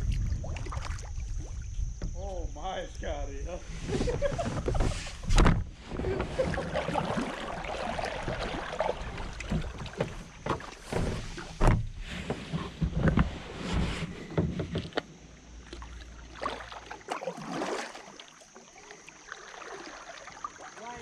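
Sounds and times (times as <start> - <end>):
paddle splashes: 0.0 - 1.8, 3.7 - 21.0
knocks against kayak hull: 9.2 - 13.3.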